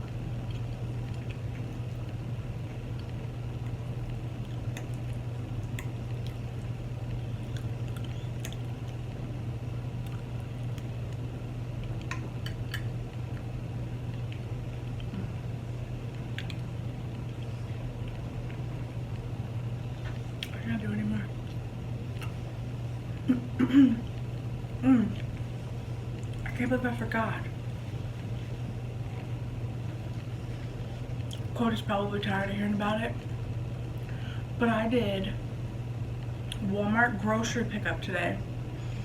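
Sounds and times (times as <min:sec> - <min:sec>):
chewing food: 0:00.0 - 0:09.3, 0:09.9 - 0:15.4, 0:16.0 - 0:19.3, 0:21.4 - 0:23.3, 0:25.1 - 0:26.6, 0:28.0 - 0:31.6
low hum: 0:00.0 - 0:39.0.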